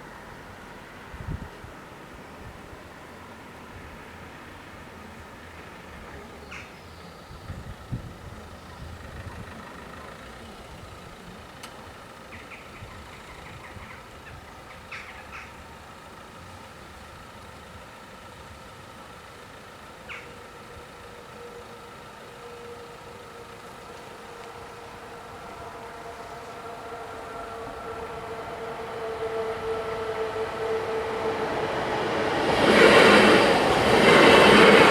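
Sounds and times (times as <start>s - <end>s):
low train hum: 0.0s - 34.9s
level crossing warning bells: 19.4s - 34.9s
bird chirps: 20.1s - 20.4s.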